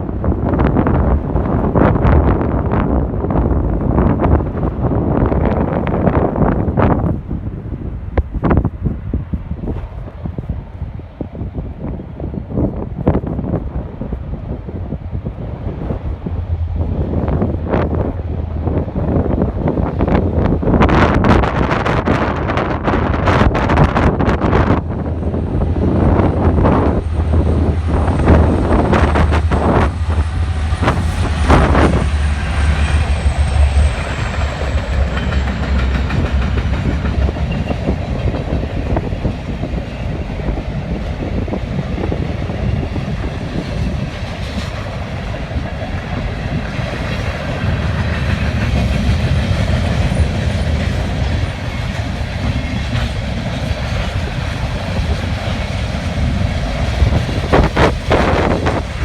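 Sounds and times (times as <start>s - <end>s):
freight train rolling past: 0.0s - 59.0s
wind buffeting microphone: 0.0s - 59.0s
wheels clacking over rail joints: 25.0s - 39.6s.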